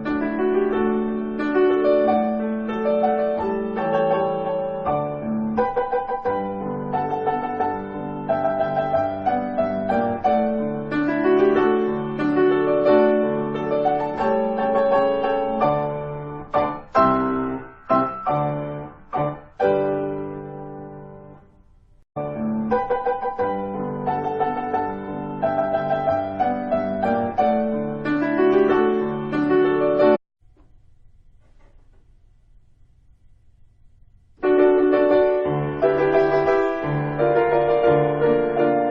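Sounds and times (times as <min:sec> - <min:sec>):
solo piano music: 0:00.0 - 0:21.6, 0:22.2 - 0:30.2, 0:34.4 - 0:38.9
faint low hum: 0:30.4 - 0:34.8.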